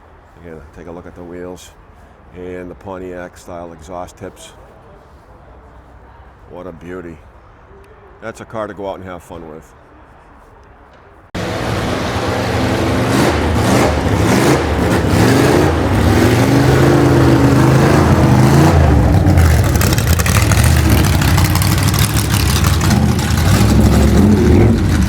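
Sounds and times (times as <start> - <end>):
car engine revving: 11.4 - 25.0.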